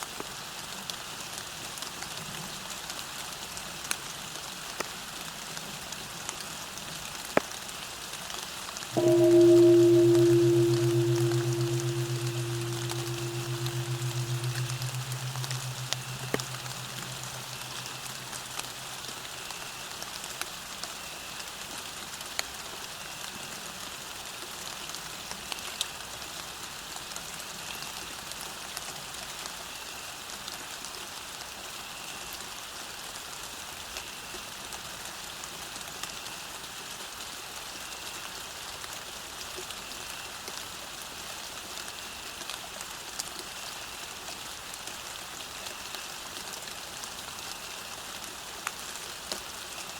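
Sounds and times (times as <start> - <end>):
low steady tone: 9.0 - 19.3.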